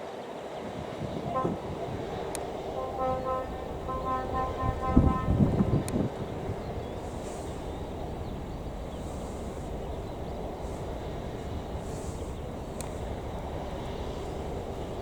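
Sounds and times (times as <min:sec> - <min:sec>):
distant jet engines rumbling: 0:00.3 - 0:15.0
faint steady hum: 0:01.2 - 0:15.0
sharp tick: 0:12.8 - 0:13.0.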